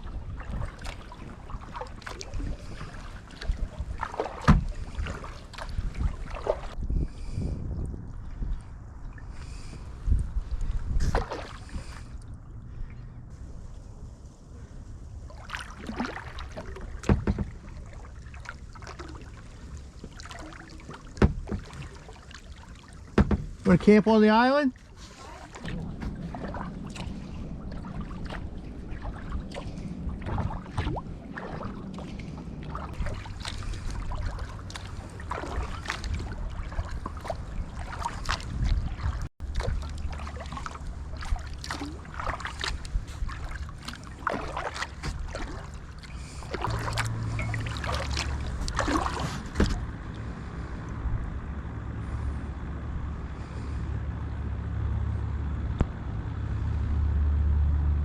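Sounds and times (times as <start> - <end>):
kayak paddle splashing: 0.0 - 7.5, 8.2 - 50.8
low rumble: 24.7 - 58.0.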